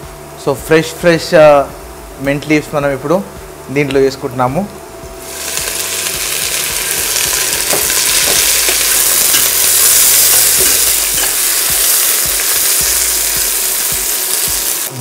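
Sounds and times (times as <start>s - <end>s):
leaves sizzling in hot oil: 5.2s - 15.0s.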